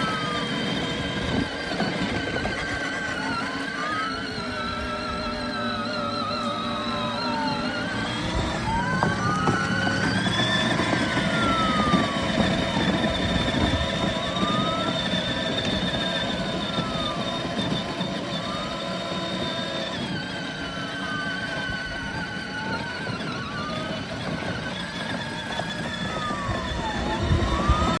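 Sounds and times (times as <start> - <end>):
toy motor and wheels rumbling: 0.0 - 28.0
toy siren wailing: 0.0 - 28.0.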